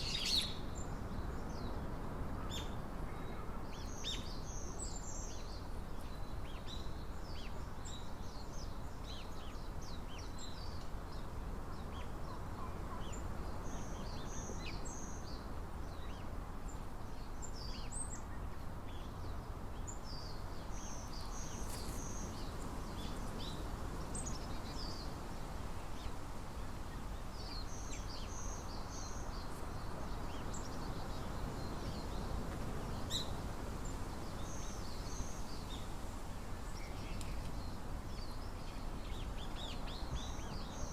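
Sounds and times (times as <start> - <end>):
small birds chirping: 0.0 - 1.8, 2.5 - 26.2.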